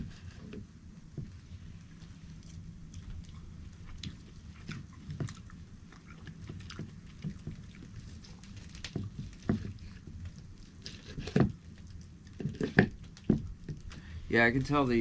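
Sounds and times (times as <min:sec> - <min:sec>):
steady low rumble: 0:13.0 - 0:15.0.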